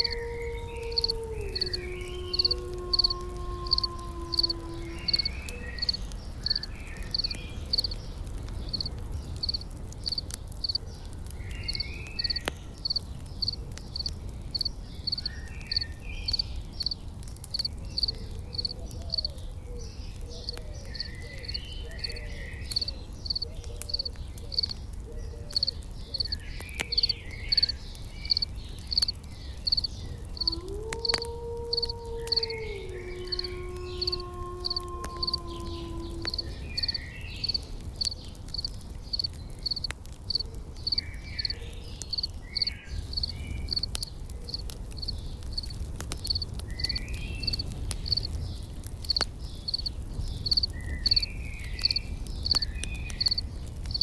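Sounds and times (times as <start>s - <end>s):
faint crackles: 0.0s - 54.0s
insect chirping: 1.0s - 7.9s, 8.7s - 10.8s, 11.7s - 19.2s, 22.8s - 23.4s, 25.6s - 27.7s, 28.3s - 32.6s, 33.2s - 45.7s, 46.3s - 48.3s, 49.1s - 52.6s, 53.2s - 54.0s.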